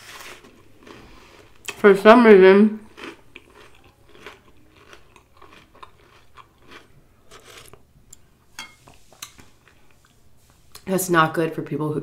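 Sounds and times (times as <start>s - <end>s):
person chewing food: 0.0s - 1.8s, 2.8s - 8.3s, 9.2s - 10.3s.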